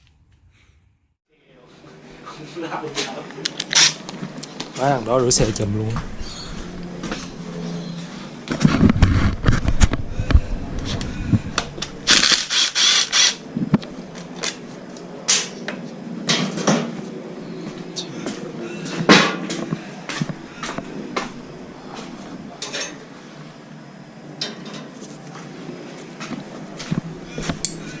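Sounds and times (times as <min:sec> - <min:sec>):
metal hand tools clinking: 0:27.6 - 0:27.9.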